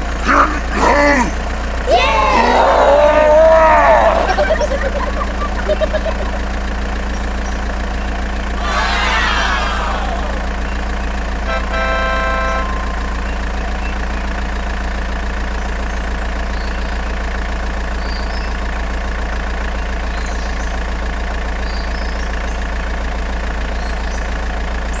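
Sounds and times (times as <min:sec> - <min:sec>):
truck engine idling: 0:00.0 - 0:25.0
horn honk: 0:11.4 - 0:14.2.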